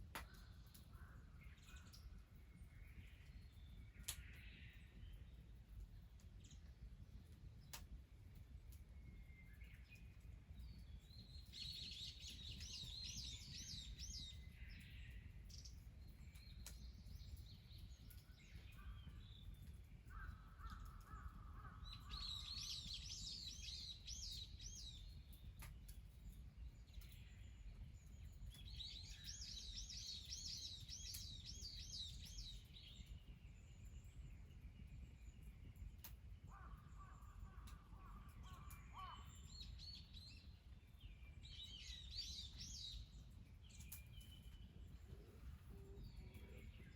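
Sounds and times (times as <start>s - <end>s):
small bird singing: 8.9s - 46.9s
faint low rumble: 43.8s - 46.9s.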